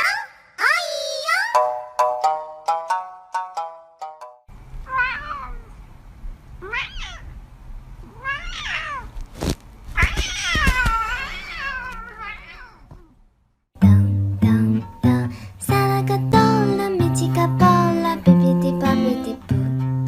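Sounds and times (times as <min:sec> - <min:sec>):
cat meowing: 0:04.8 - 0:05.8, 0:06.6 - 0:07.4, 0:08.0 - 0:09.2, 0:09.9 - 0:13.2.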